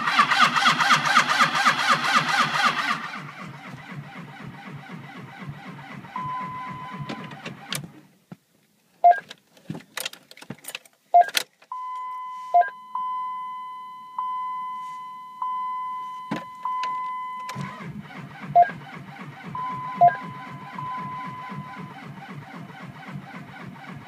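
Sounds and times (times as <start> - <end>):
starter cranking diesel engine: 0.0 - 7.9, 17.5 - 24.0
short beeps: 6.2 - 7.2, 11.2 - 17.6, 19.6 - 21.9.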